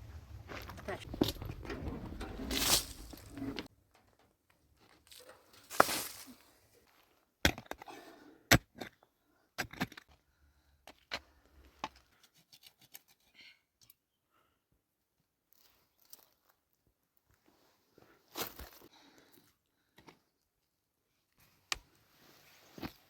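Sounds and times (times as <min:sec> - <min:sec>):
rustling: 0:00.0 - 0:03.7, 0:05.0 - 0:06.6.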